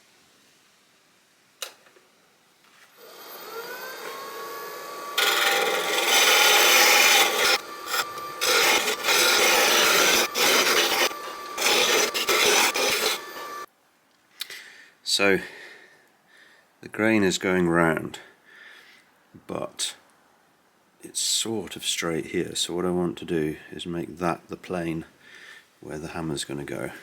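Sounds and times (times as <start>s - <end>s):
power tool shaping wood: 3.0s - 13.7s
power tool whine: 3.0s - 13.7s.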